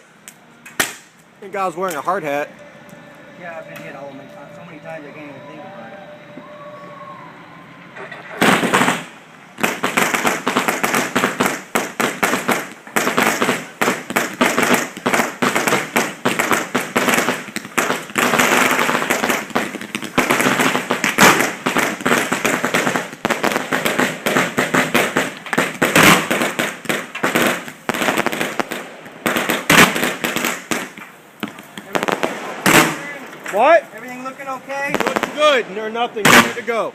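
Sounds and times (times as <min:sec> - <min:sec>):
fireworks bangs: 0:00.0 - 0:36.9.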